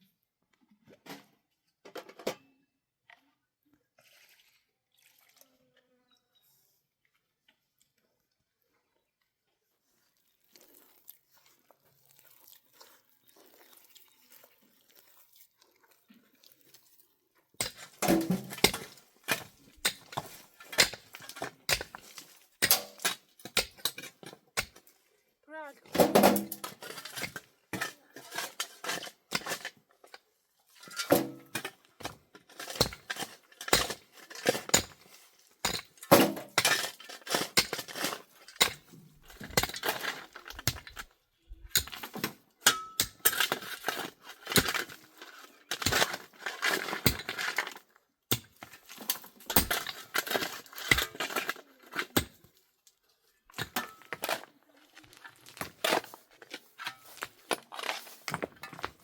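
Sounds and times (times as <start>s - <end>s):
pots and dishes clinking: 17.6s - 22.0s, 26.0s - 29.7s, 30.8s - 35.0s, 42.6s - 44.0s.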